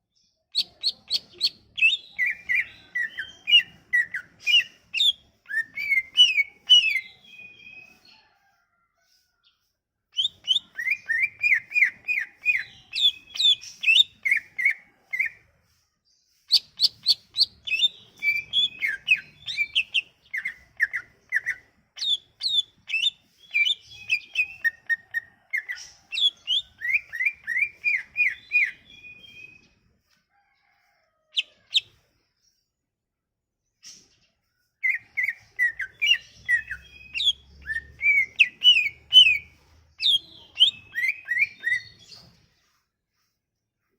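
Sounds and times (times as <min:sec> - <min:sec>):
bird chirping and whistling song: 0:00.5 - 0:08.2, 0:10.2 - 0:15.4, 0:16.5 - 0:29.8, 0:34.8 - 0:42.4.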